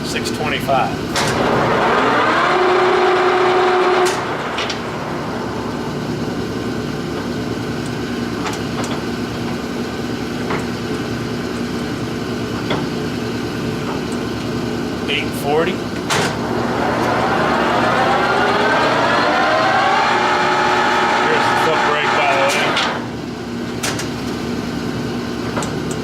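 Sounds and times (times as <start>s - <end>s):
machine low hum: 1.0s - 23.8s
lathe spindle whine: 1.4s - 9.2s, 15.8s - 23.5s.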